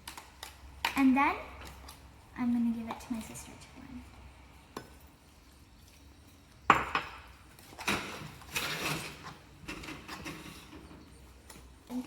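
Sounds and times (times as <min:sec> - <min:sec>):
dishes clattering and scraping: 0:06.7 - 0:11.2.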